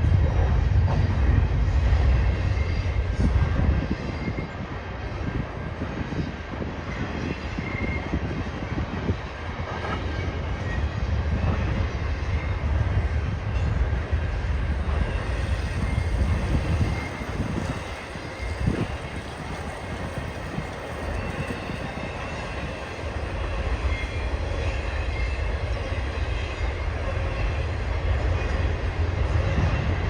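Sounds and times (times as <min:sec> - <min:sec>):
clicking and clatter of rail cars: 0:00.0 - 0:30.0
train wheels rumbling on rail: 0:00.0 - 0:30.0
high wheel squeal: 0:14.6 - 0:27.6.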